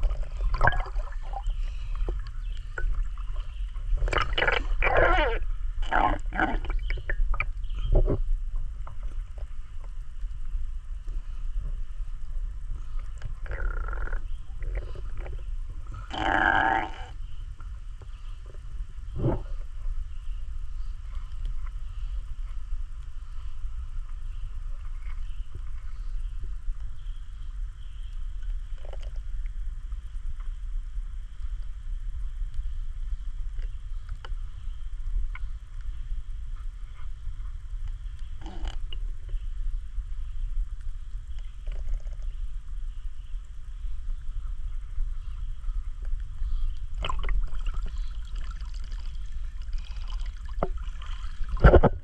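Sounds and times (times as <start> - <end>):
flowing river water: 0.0 - 5.5, 46.9 - 52.0
faint steady hiss: 0.0 - 52.0
wind rumbling on microphone: 0.0 - 52.0.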